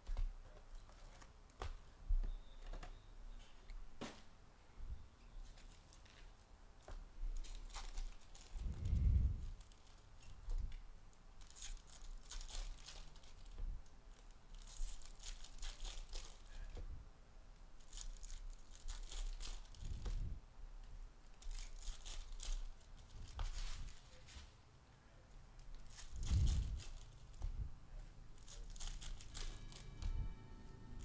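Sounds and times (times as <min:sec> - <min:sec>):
foil wrappers tearing and crinkling: 0:07.4 - 0:08.7, 0:11.4 - 0:16.6, 0:17.8 - 0:20.1, 0:21.4 - 0:24.2, 0:25.7 - 0:27.3, 0:28.4 - 0:30.0.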